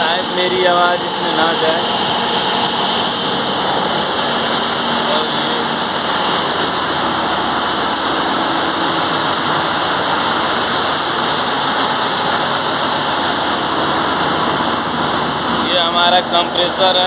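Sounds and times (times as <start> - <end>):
engine room machinery roar: 0.0 - 17.0
high machinery whines: 0.0 - 17.0
oil purifiers running: 0.0 - 17.0.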